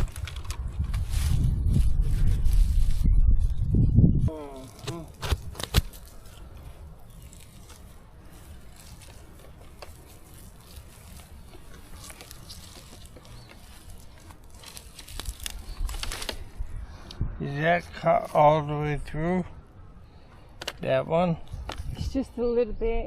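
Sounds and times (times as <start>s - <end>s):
branches rustling and crackling: 0.0s - 3.8s, 4.4s - 17.1s
sharp snaps of branches: 4.6s - 6.5s.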